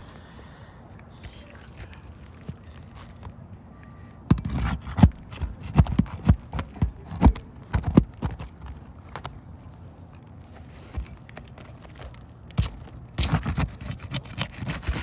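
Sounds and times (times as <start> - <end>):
hand tool knocking on roof shingle: 4.3 - 8.5.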